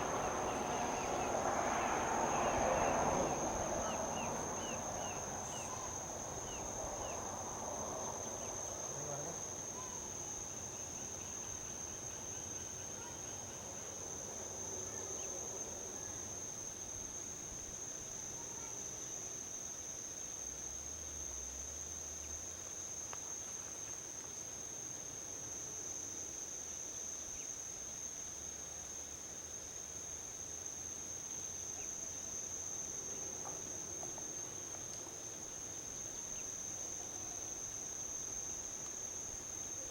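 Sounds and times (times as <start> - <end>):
distant highway traffic rumble: 0.0 - 10.0
insect chorus drone: 0.0 - 39.9.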